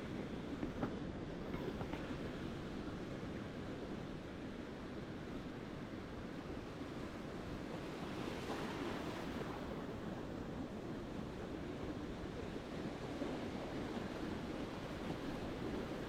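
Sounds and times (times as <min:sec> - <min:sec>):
ocean surf washing ashore: 0:06.0 - 0:16.0.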